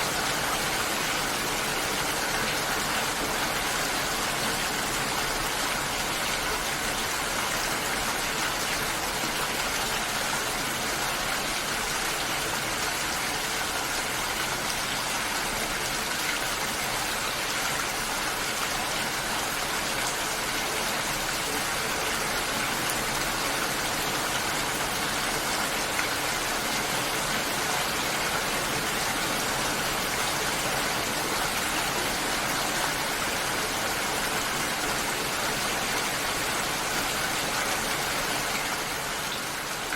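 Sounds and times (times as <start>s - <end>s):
water hissing steadily: 0.0s - 39.9s.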